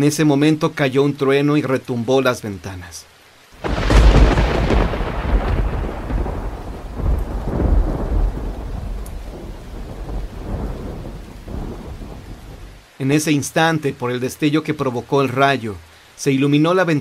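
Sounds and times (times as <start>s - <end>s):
steady rain: 0.0s - 17.0s
rolling thunder: 3.6s - 12.8s.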